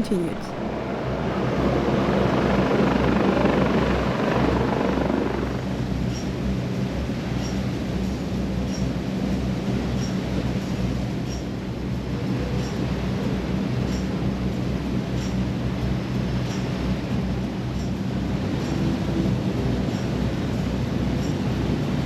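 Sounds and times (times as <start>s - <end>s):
boat engine droning: 0.0s - 9.6s.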